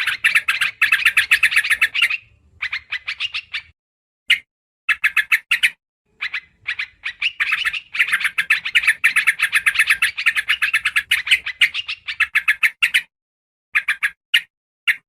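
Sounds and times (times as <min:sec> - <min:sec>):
bird chattering calls: 0:00.0 - 0:03.7, 0:04.9 - 0:13.0, 0:13.8 - 0:14.2.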